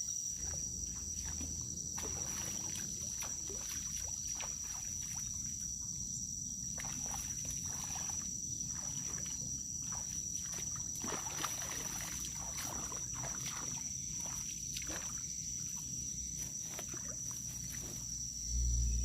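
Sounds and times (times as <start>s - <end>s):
high-pitched insect drone: 0.0s - 19.0s
low rumble: 18.4s - 19.0s.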